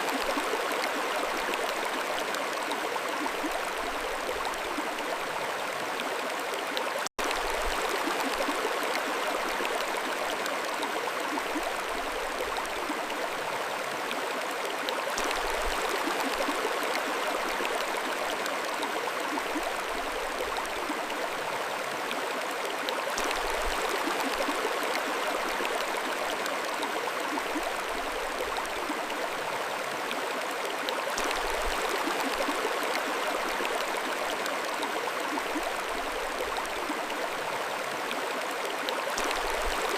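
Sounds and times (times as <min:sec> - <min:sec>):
mountain stream flowing: 0:00.0 - 0:39.9.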